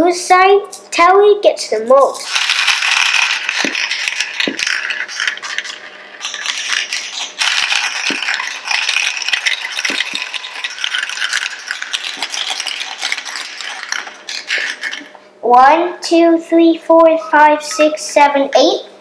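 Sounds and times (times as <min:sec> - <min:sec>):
marbles rattling down plastic run: 0:02.2 - 0:15.1.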